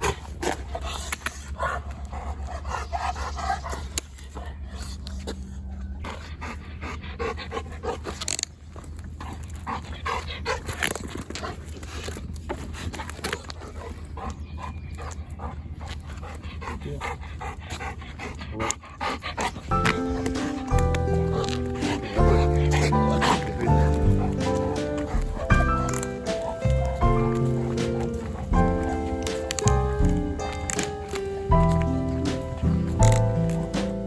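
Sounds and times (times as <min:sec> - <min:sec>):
dog panting: 0:00.0 - 0:34.0
rustles and clicks: 0:19.4 - 0:34.0
steady low rumble: 0:19.5 - 0:34.0.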